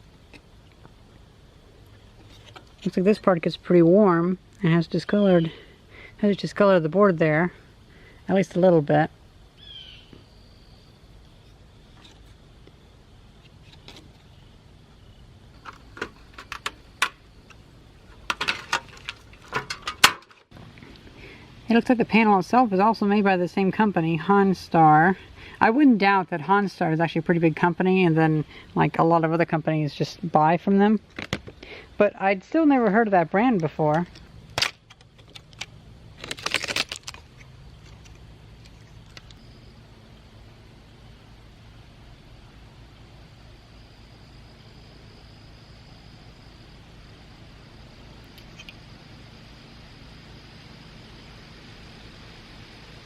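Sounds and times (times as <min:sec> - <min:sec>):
plastic parts clicking and knocking: 0:15.6 - 0:17.2, 0:18.2 - 0:20.4.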